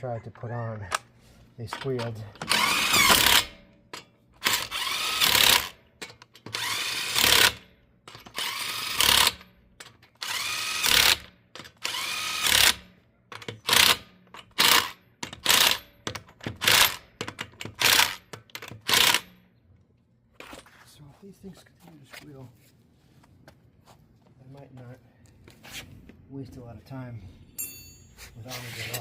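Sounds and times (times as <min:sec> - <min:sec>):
cordless power tool whining: 0:02.4 - 0:03.6, 0:04.4 - 0:05.8, 0:06.4 - 0:09.4, 0:10.2 - 0:12.8.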